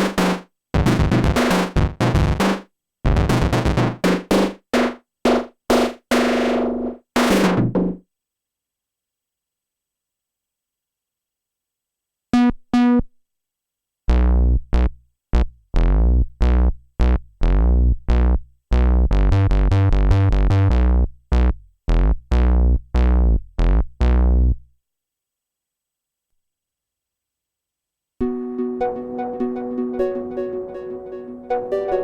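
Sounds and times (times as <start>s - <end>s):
deep punchy synthesizer bass notes: 0.8s - 2.4s, 3.1s - 4.0s, 14.1s - 24.6s.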